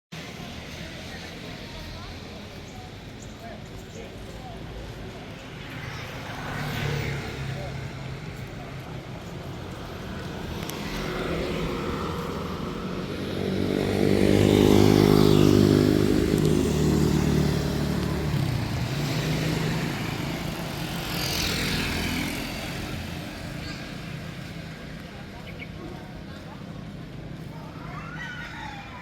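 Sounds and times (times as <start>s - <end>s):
vehicle engine passing by: 5.7s - 24.8s.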